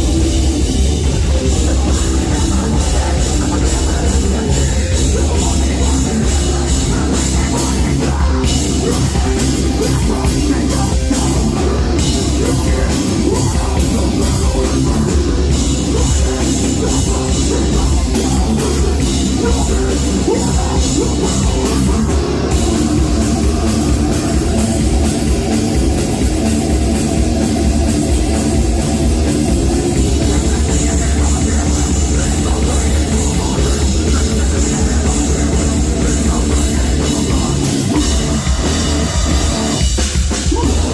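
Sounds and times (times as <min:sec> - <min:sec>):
live heavy metal band playing: 0:00.0 - 0:40.9.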